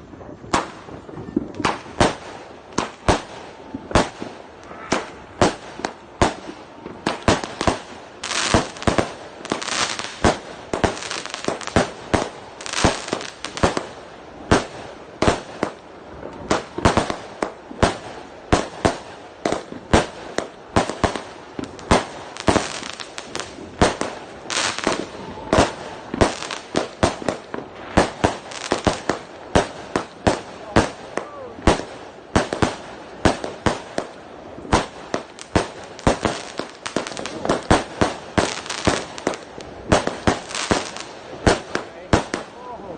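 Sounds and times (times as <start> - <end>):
firework bangs: 0.0 - 42.7
firework crackling: 0.0 - 42.9.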